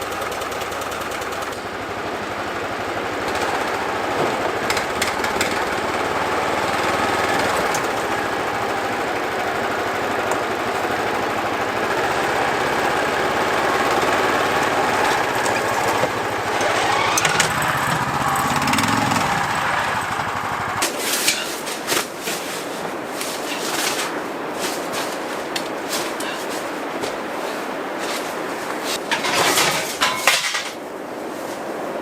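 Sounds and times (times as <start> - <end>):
small engine running: 0.0 - 20.8.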